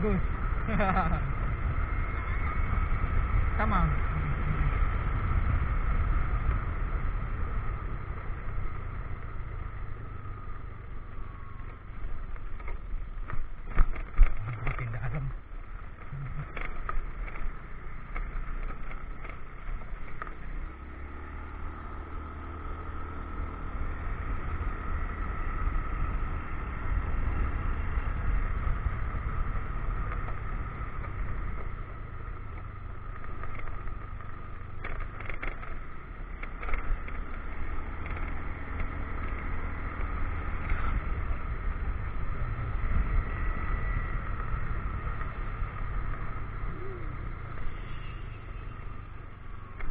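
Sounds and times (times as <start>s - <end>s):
motorcycle engine rumble: 0.0s - 49.9s.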